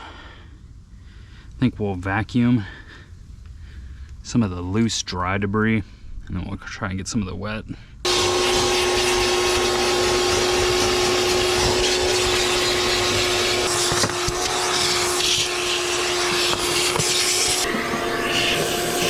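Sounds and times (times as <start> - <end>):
vacuum cleaner running: 8.1 - 19.0.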